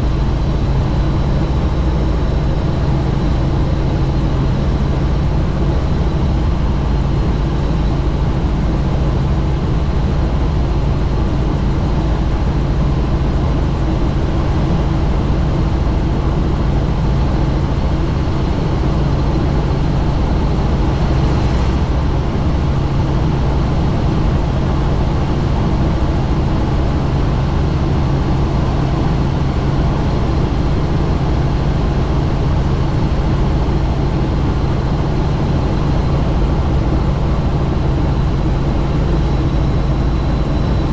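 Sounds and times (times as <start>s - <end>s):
helicopter rotor and engine drone: 0.0s - 40.9s
wind rushing past microphone: 19.4s - 24.6s.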